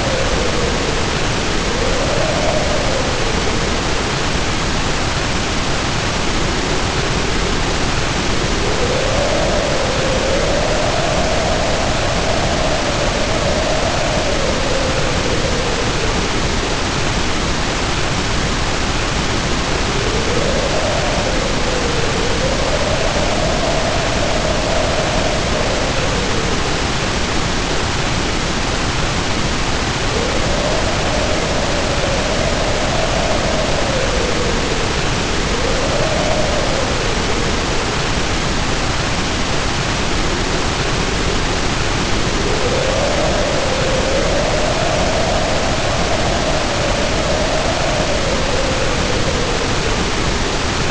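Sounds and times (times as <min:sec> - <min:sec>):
heavy rain pouring: 0:00.0 - 0:50.9
wind howling: 0:00.0 - 0:50.9.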